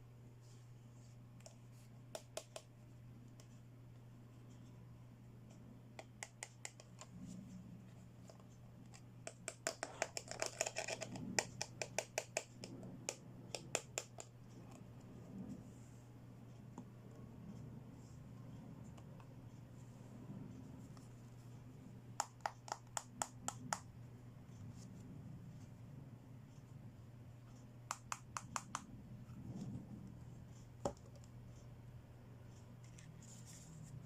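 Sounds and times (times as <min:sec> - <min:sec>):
steady low hum: 0:00.0 - 0:34.0
plastic clicks and scratching: 0:08.2 - 0:14.9.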